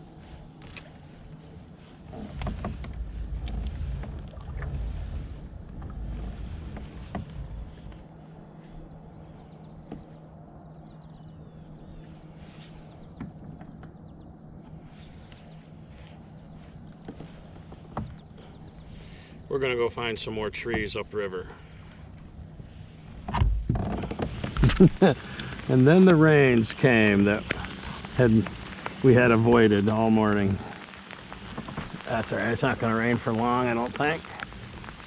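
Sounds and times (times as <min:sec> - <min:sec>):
low handling rumble: 0:00.0 - 0:35.0.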